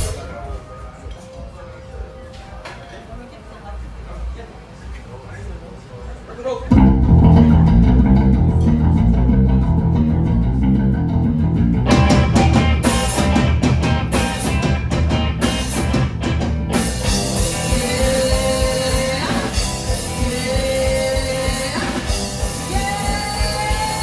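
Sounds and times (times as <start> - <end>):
drum kit: 0.0 - 1.2, 6.7 - 24.0
guitars and bass: 6.7 - 24.0.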